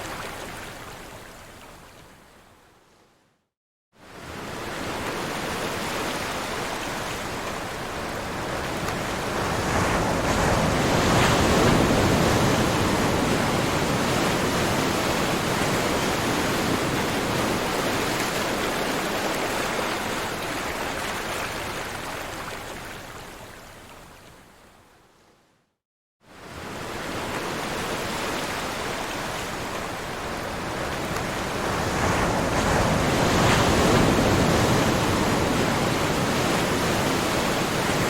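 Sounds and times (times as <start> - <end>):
waves breaking: 26.5 - 38.0.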